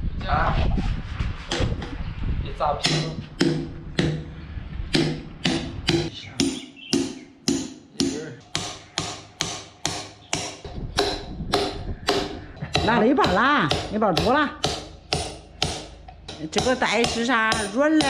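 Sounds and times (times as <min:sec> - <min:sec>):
rhythmic knocking strikes: 0:02.8 - 0:04.3, 0:04.9 - 0:18.0.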